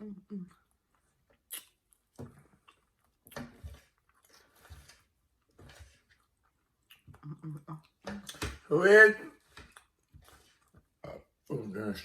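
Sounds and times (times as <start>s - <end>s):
person chewing: 0.5s - 8.5s, 9.4s - 11.4s
wet mouth smacks: 1.5s - 1.8s.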